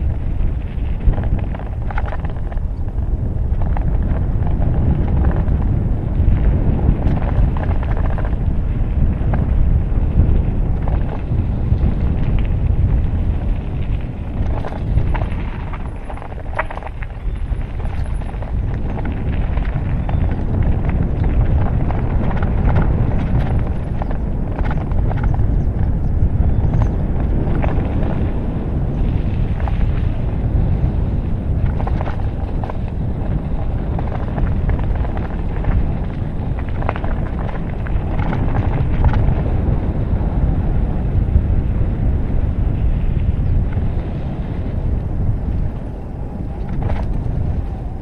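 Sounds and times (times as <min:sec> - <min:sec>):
steady low rumble: 0:00.0 - 0:48.0
wind buffeting microphone: 0:00.0 - 0:48.0
horse hooves clopping: 0:03.6 - 0:39.9.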